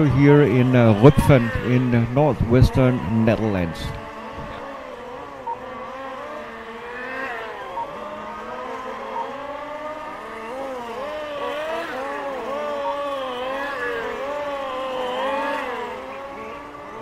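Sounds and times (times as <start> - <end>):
model car motors whining: 0.0 - 17.0
short beeps: 7.7 - 8.0.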